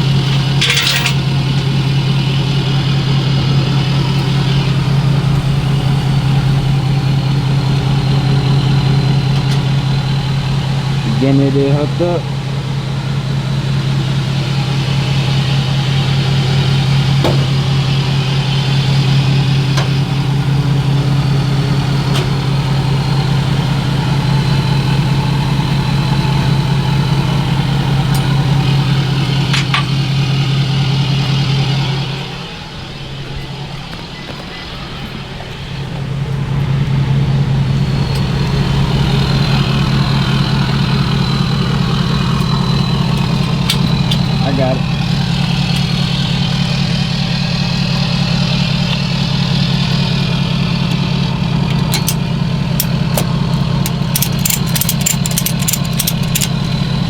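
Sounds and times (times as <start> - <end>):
truck engine idling: 0.0 - 57.0
hook-up gear clicks and clanks: 0.1 - 1.8, 19.6 - 30.0, 41.2 - 46.0, 50.8 - 57.0.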